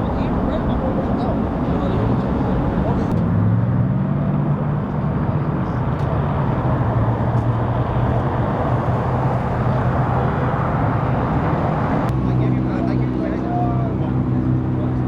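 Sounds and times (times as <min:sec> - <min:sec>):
vehicle engine idling: 0:00.0 - 0:03.2, 0:05.6 - 0:12.1.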